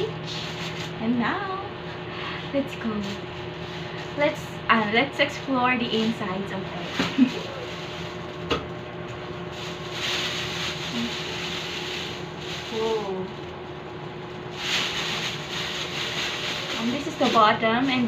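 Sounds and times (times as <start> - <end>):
plastic bag rustling and crinkling: 0.0 - 1.2, 5.8 - 18.0.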